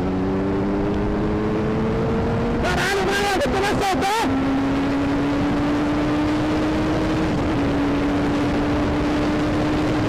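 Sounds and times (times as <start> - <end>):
motorcycle engine running: 0.0 - 10.0
wind rush on microphone: 0.0 - 10.0.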